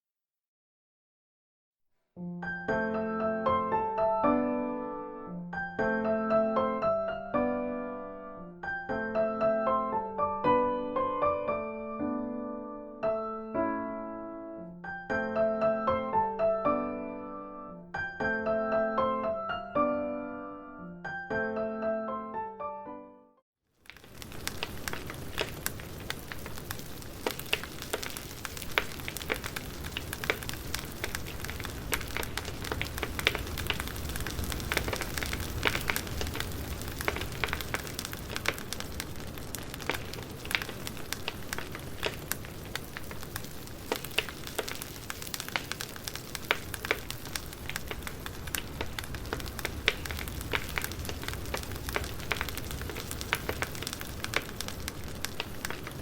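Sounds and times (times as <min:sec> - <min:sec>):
low hiss of burning logs: 0:23.8 - 0:56.0
pops and snaps of fire: 0:23.8 - 0:56.0
wood fire crackling: 0:23.8 - 0:56.0.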